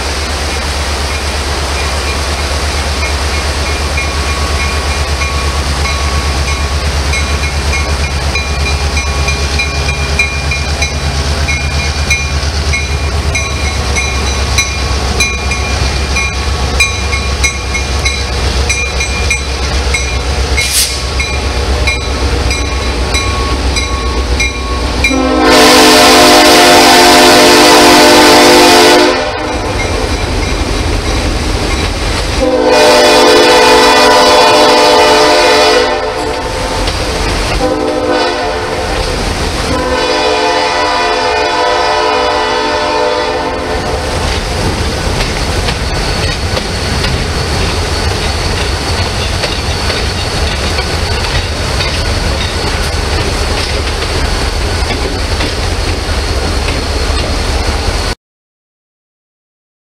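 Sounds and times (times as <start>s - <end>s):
train wheels clicking over rail joints: 0.0s - 25.2s, 29.6s - 32.5s, 36.2s - 37.9s, 44.1s - 58.1s
locomotive horn blasts: 24.8s - 29.8s, 32.3s - 36.9s, 37.6s - 44.0s.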